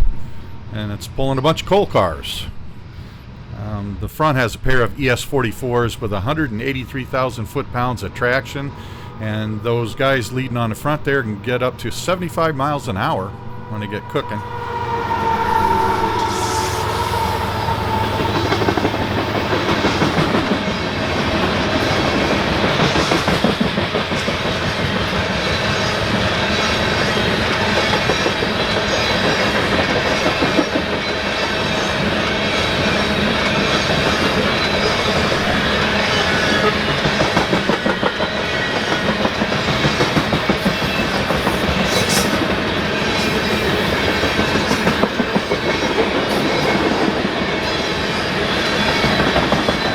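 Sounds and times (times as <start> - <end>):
freight train rolling past: 0.0 - 49.9
wheels clacking over rail joints: 17.9 - 49.9.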